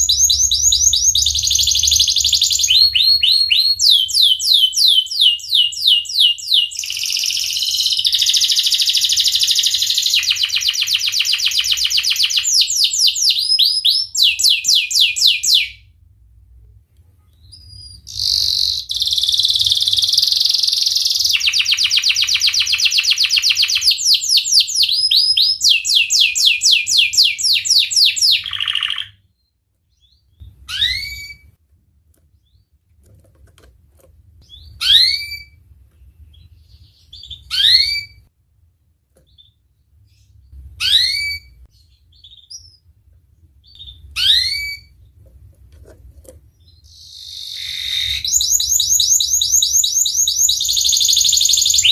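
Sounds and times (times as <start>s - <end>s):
short rising bird chirps: 0.0s - 4.9s
canary trilling: 0.0s - 15.8s, 17.4s - 31.6s, 34.4s - 35.6s, 36.2s - 38.3s, 39.3s - 42.9s, 43.6s - 45.2s, 46.5s - 51.9s.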